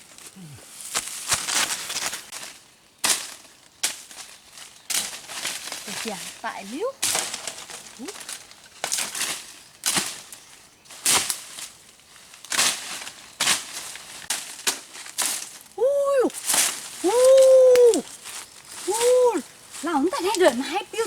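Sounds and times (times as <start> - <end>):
crunching and crinkling: 0.0 - 21.0
short pitched cry: 15.8 - 16.3, 17.0 - 18.0.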